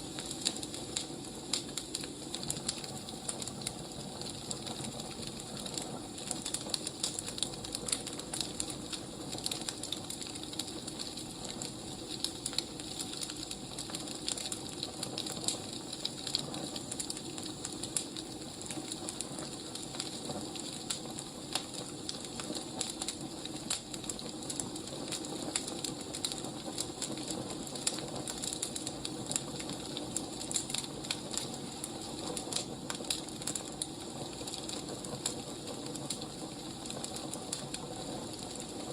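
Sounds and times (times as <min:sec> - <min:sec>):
firewood crackling and popping: 0:00.0 - 0:38.9.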